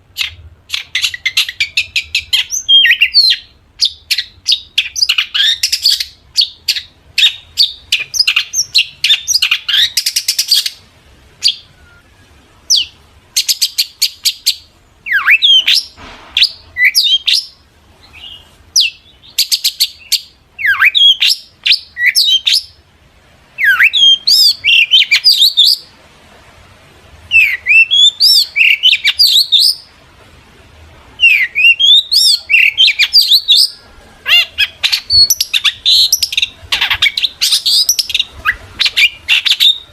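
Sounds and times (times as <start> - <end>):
shrike singing: 31.2 - 39.9.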